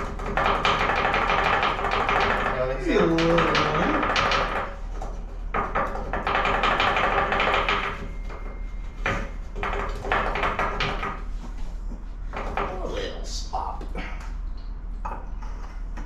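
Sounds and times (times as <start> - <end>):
sharp knocks: 0.0 - 11.4
steady low hum: 0.0 - 16.0.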